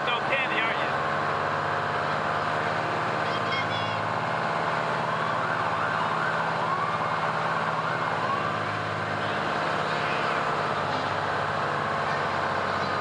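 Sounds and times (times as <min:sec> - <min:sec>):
fire truck engine running: 0:00.0 - 0:13.0
faint siren wails: 0:04.8 - 0:13.0.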